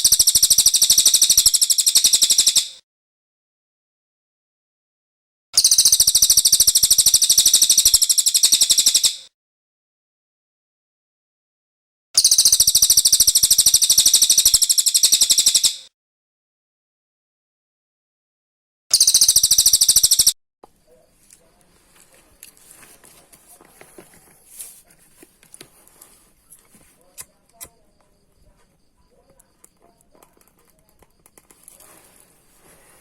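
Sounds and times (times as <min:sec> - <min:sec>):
faint clicks and rustles: 0:21.1 - 0:33.0.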